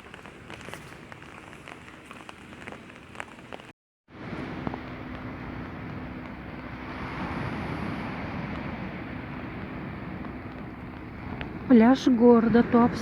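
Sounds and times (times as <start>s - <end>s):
wind noise on microphone: 0.0s - 13.0s
sea surf: 4.2s - 13.0s.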